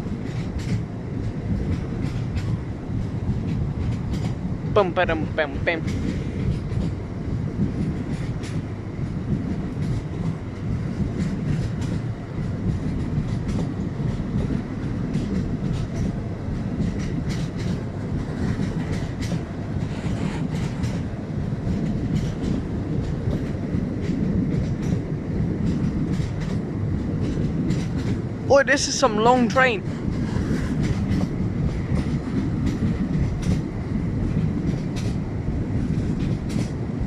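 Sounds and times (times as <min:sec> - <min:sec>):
train rumbling overhead: 0:00.0 - 0:37.0
wheels clicking and clanking: 0:35.8 - 0:36.8.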